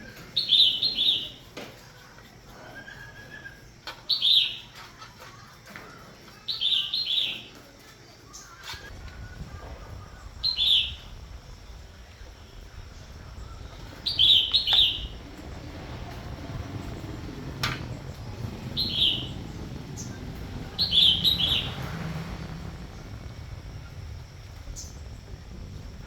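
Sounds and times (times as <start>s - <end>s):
bird chirps: 0.3s - 4.8s, 8.3s - 26.0s
low steady rumble: 8.8s - 26.0s.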